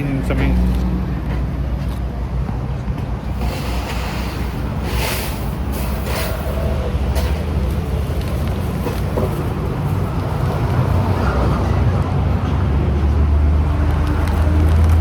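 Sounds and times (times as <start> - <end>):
road vehicles rumbling: 0.0 - 15.0.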